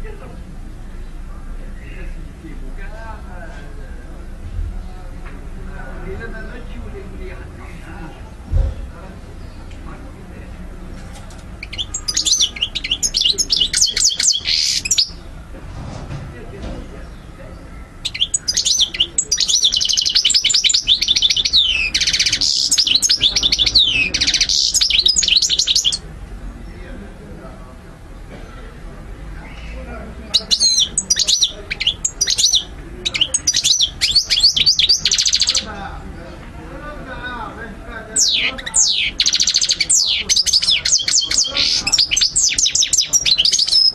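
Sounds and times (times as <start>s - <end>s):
finch singing: 11.0s - 15.4s, 17.0s - 26.0s, 29.4s - 36.3s, 38.0s - 43.9s
goldfinch twittering song: 11.6s - 15.2s, 17.9s - 26.0s, 30.3s - 35.7s, 38.2s - 43.9s.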